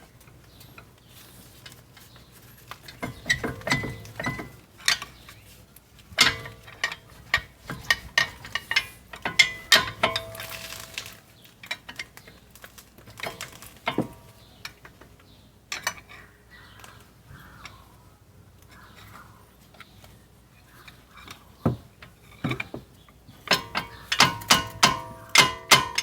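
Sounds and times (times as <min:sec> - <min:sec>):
metal parts clinking and clanking: 0:02.5 - 0:05.4, 0:06.1 - 0:14.9, 0:23.4 - 0:26.0.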